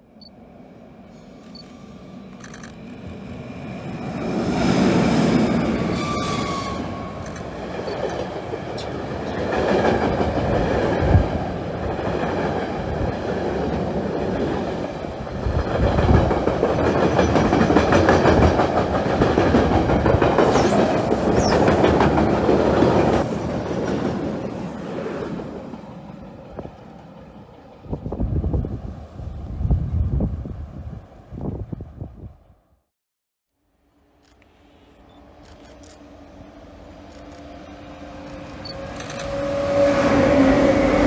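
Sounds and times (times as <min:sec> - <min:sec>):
high wheel squeals: 0:05.5 - 0:08.1
train wheels clattering over rails: 0:15.3 - 0:24.6.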